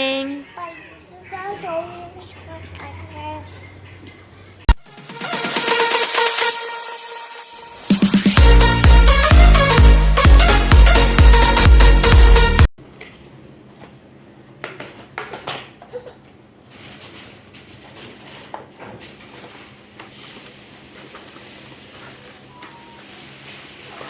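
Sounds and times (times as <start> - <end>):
electronic dance music: 4.8 - 12.7.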